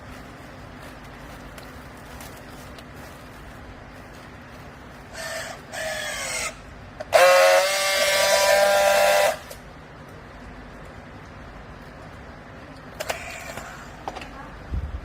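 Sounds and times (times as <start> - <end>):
low steady hum: 0.0 - 15.0
loud steady tone: 6.5 - 9.6.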